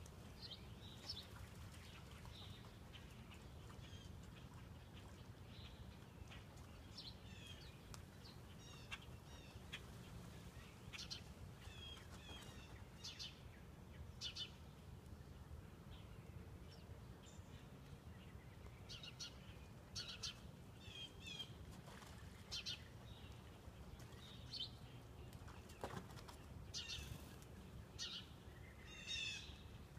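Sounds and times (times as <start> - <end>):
small birds chirping and singing: 22.4 - 29.9.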